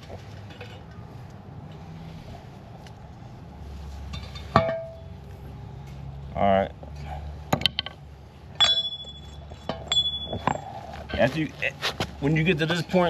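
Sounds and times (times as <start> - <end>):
metallic clink with ring: 8.6 - 10.8.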